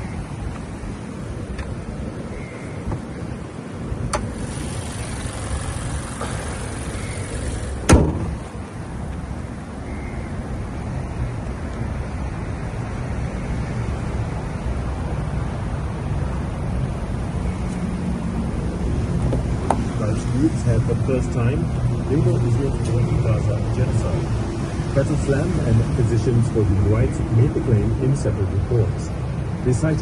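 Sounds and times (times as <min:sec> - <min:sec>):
car rumble: 0:00.0 - 0:30.0
sharp thump: 0:07.8 - 0:08.4.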